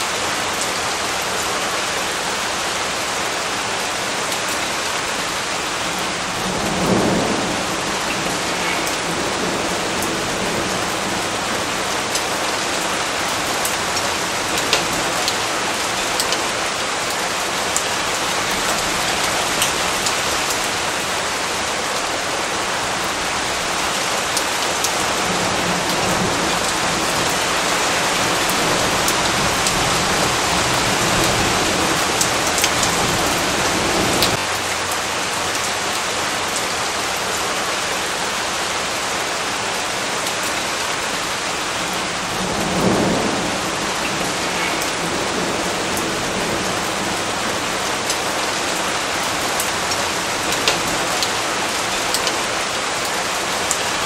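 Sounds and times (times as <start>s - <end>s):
steady rain hiss: 0.0s - 54.0s
raindrops ticking: 6.8s - 21.0s, 23.0s - 37.4s, 42.2s - 54.0s.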